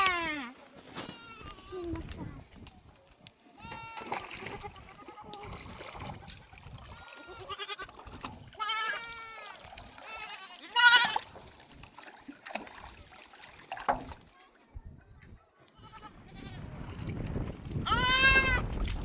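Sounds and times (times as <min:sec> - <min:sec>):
sheep and goats bleating: 0:00.0 - 0:02.0, 0:03.5 - 0:05.5, 0:06.1 - 0:11.3, 0:15.8 - 0:16.6, 0:17.8 - 0:18.6.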